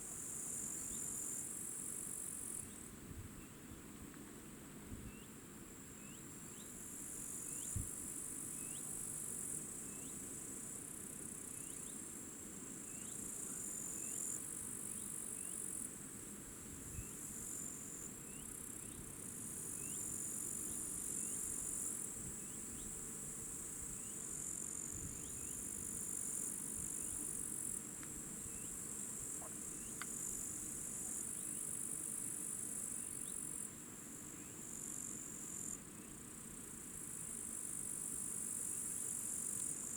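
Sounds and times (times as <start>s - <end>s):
high-pitched insect chorus: 6.0s - 15.9s, 16.9s - 33.7s.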